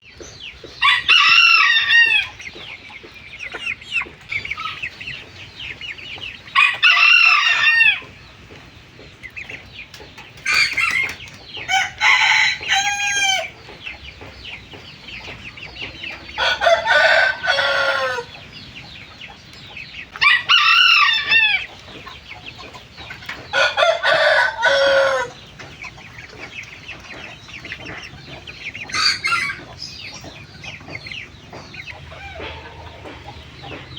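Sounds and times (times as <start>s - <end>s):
chickens clucking: 0.0s - 33.9s
young roosters crowing: 0.8s - 2.4s, 6.4s - 8.2s, 10.5s - 13.6s, 16.1s - 18.5s, 20.2s - 22.0s, 23.3s - 25.6s, 28.9s - 30.0s.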